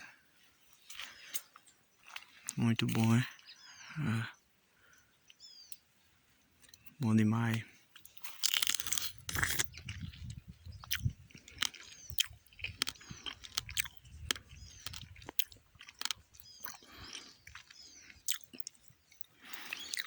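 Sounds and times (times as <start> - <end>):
faint birds chirping: 0.0 - 8.3, 9.4 - 20.0
wet mouth clicks and chewing: 0.8 - 3.0, 8.0 - 20.0.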